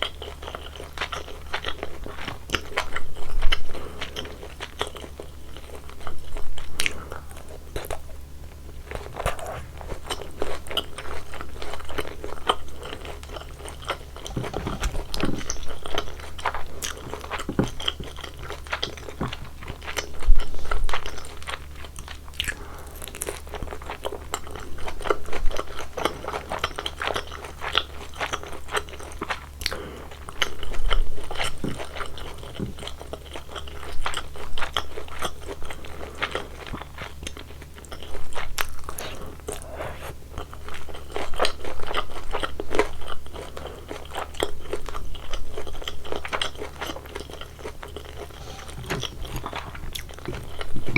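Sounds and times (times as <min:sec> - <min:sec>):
crunching and chewing food: 0:00.0 - 0:50.9.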